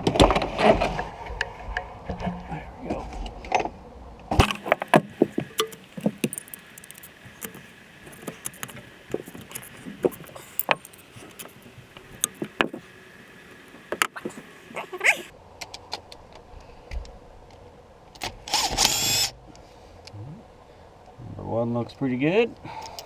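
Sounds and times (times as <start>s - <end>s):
metal hand tools clinking: 4.4s - 15.3s.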